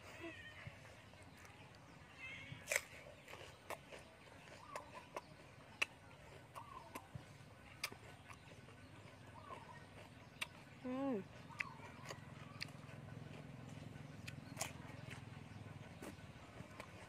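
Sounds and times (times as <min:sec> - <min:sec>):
faint animal calls: 0:00.0 - 0:03.6, 0:04.4 - 0:17.0
crunchy chewing: 0:00.0 - 0:17.0
wet mouth clicks: 0:02.6 - 0:08.4.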